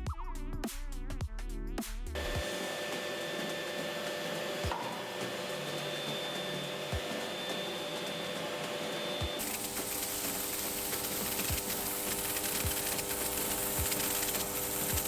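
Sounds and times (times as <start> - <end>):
blower rushing hum: 2.2 - 15.0.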